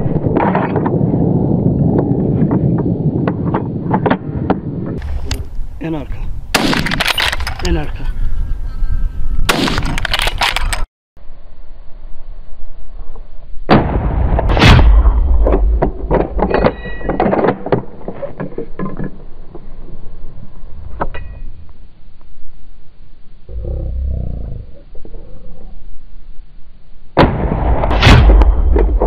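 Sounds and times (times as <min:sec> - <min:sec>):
rifle shots: 0:06.5 - 0:07.5, 0:09.5 - 0:10.7.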